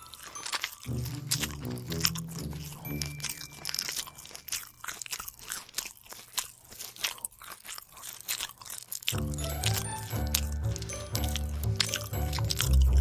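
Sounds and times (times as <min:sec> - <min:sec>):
crunching and chewing: 0:00.0 - 0:13.0
low notes: 0:09.2 - 0:13.0.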